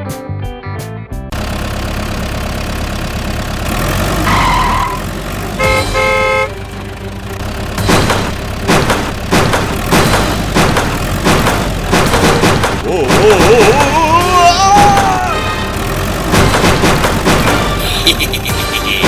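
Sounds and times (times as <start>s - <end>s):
vehicle engine rumbling: 1.2s - 19.0s
horn honking: 4.2s - 7.4s, 15.2s - 16.1s
sharp knocks: 7.8s - 14.0s, 16.3s - 17.8s.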